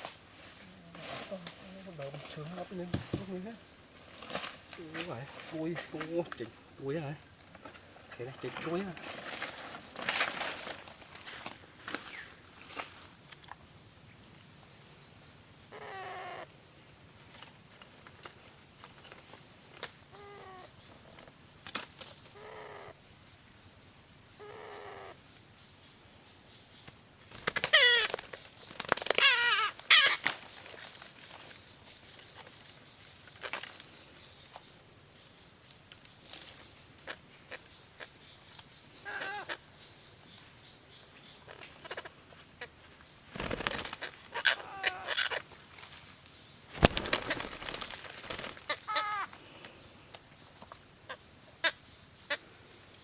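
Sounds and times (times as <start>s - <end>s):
parrot chicks squawking: 29.2s - 30.2s, 39.0s - 39.6s, 43.9s - 45.4s, 48.7s - 49.3s.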